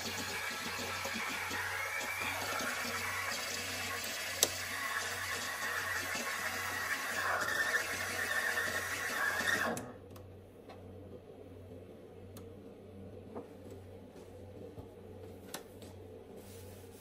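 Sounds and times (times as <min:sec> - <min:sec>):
water running from a tap: 0:00.0 - 0:09.7.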